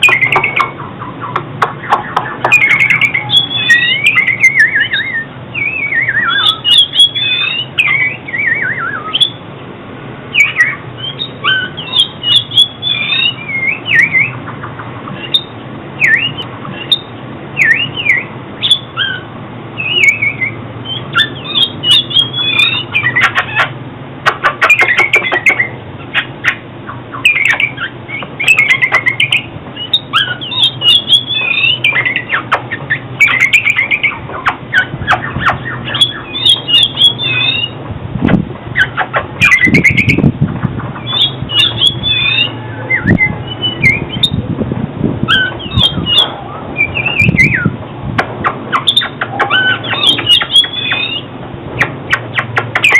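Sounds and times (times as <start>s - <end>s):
bird singing whistled phrases: 0.0s - 9.4s, 10.3s - 14.4s, 15.2s - 23.7s, 24.6s - 37.8s, 38.8s - 40.3s, 41.0s - 44.4s, 45.3s - 47.7s, 48.7s - 52.9s
harsh scratchy bird notes: 10.3s - 37.8s, 45.3s - 52.9s.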